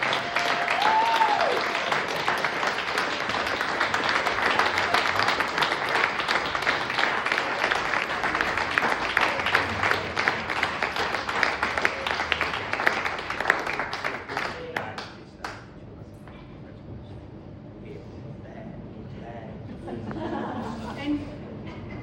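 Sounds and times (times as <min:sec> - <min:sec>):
person whooping: 0:00.0 - 0:02.4
audience applauding: 0:00.0 - 0:15.6.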